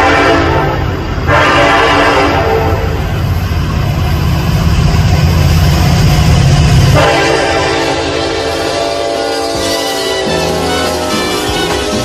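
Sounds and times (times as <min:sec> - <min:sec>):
train air horn: 0:00.0 - 0:03.0, 0:06.9 - 0:12.0
diesel locomotive engines rumbling: 0:00.0 - 0:12.0.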